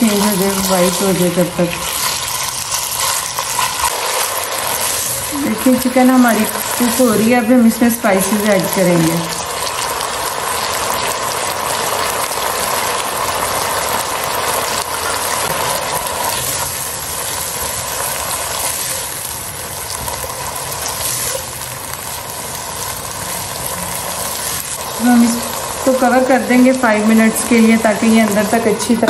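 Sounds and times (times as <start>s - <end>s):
food sizzling in hot oil: 0.0s - 29.0s
spatula stirring: 1.8s - 7.2s.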